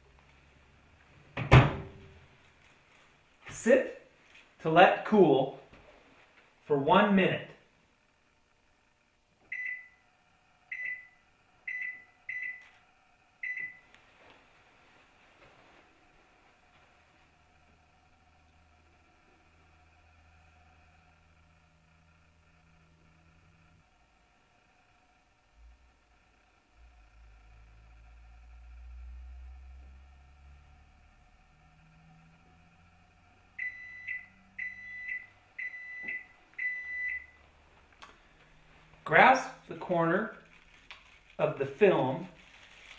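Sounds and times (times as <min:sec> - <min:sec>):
microwave oven beeping: 0:09.4 - 0:14.0, 0:27.0 - 0:37.4
kitchen timer beeping: 0:09.5 - 0:10.0, 0:10.7 - 0:12.6, 0:13.4 - 0:13.8, 0:33.6 - 0:37.4.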